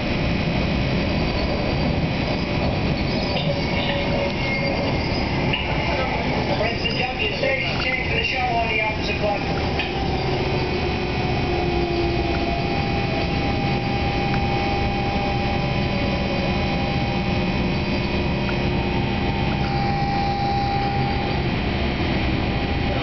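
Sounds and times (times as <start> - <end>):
train wheels rumbling: 0.0 - 23.0
whining motor tones: 7.0 - 23.0.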